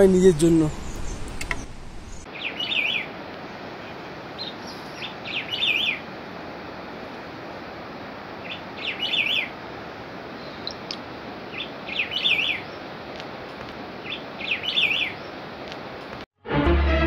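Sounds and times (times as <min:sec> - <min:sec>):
steady rushing hiss: 0:00.0 - 0:16.3
songbird twittering: 0:00.7 - 0:03.1, 0:03.8 - 0:06.0, 0:08.4 - 0:09.6, 0:10.4 - 0:12.9, 0:14.0 - 0:15.4
music: 0:16.4 - 0:17.0.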